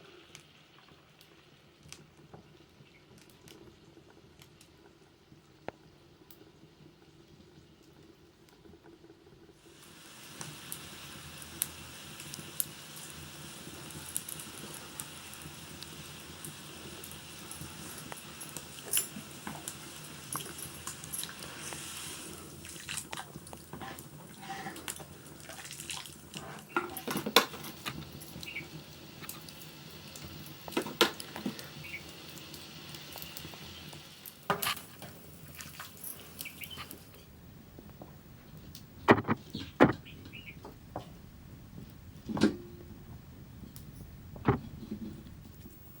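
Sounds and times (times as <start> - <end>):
metal pots and utensils clinking: 26.4 - 28.5.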